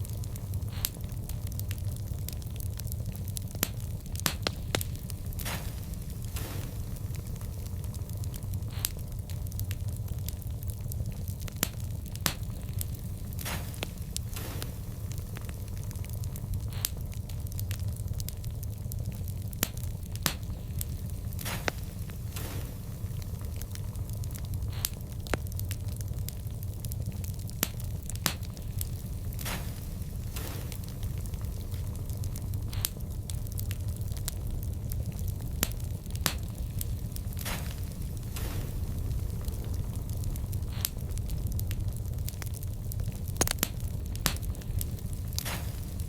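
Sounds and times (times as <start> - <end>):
wood fire crackling: 0.0 - 46.0.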